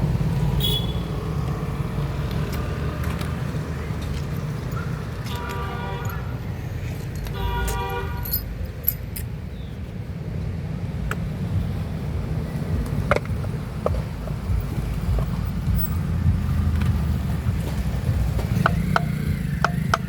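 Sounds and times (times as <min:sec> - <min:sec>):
low traffic rumble: 0:00.0 - 0:20.0
vehicle horn toots: 0:00.5 - 0:01.3, 0:05.2 - 0:06.4, 0:07.3 - 0:08.4.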